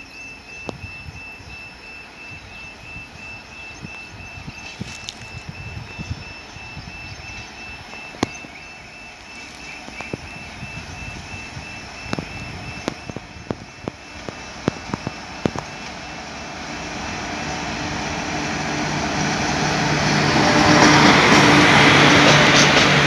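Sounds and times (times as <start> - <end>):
locomotive low hum: 0.0 - 23.0
freight train rumbling past: 5.3 - 23.0
sharp clicks: 9.4 - 16.0.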